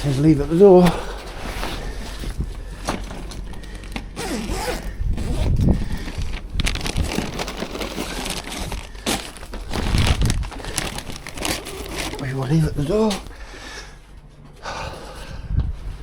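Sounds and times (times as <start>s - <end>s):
bags rustling and crinkling: 0.0s - 13.5s
zip: 4.2s - 6.0s.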